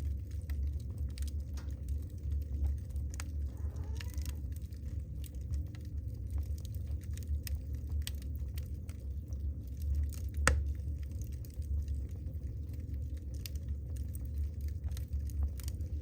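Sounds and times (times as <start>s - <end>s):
burning logs crackling: 0.0s - 16.0s
fire flames rumbling: 0.0s - 16.0s
log popping: 9.8s - 11.4s.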